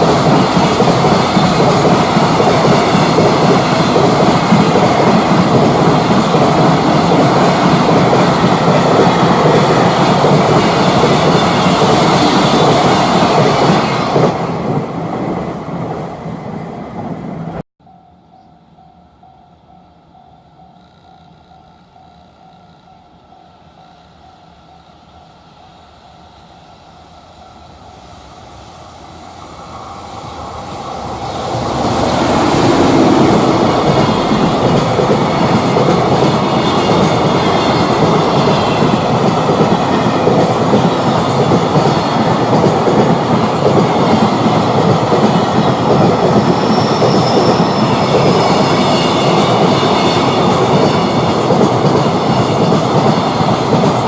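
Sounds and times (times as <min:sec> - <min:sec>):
wheels clickety-clack on rails: 0:00.0 - 0:15.5, 0:30.3 - 0:54.0
freight train passing: 0:00.0 - 0:54.0
wheel squeal: 0:46.4 - 0:51.1.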